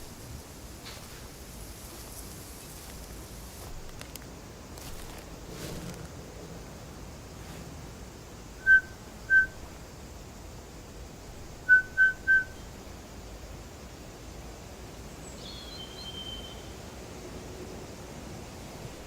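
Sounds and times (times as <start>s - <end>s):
longer higher whistle: 8.6s - 9.6s, 11.7s - 12.6s
short whistled notes: 8.6s - 9.6s, 11.7s - 12.5s.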